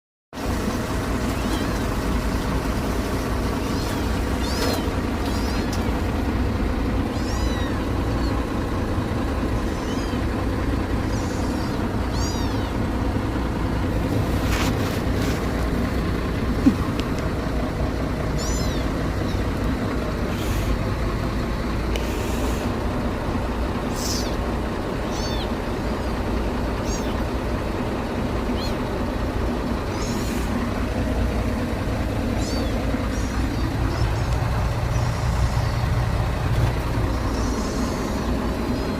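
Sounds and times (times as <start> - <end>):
low machine hum: 0.4 - 38.9
kitten mewing: 3.6 - 6.1, 7.0 - 8.4, 9.5 - 10.3, 11.0 - 13.0, 16.5 - 17.0, 18.4 - 19.4, 23.9 - 24.4, 25.1 - 26.1, 26.8 - 27.2, 29.9 - 30.5, 32.3 - 35.8, 37.1 - 38.4.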